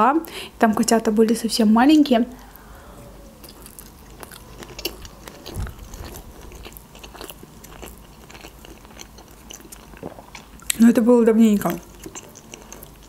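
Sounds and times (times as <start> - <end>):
moist sticky chewing smacks: 3.4 - 10.8, 11.6 - 13.0.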